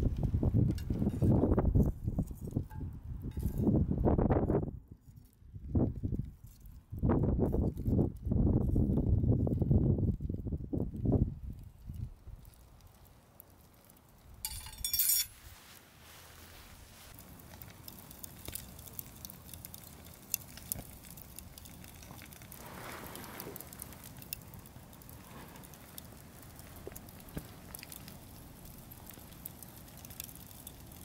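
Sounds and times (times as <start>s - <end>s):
metallic jingle: 14.5s - 15.3s.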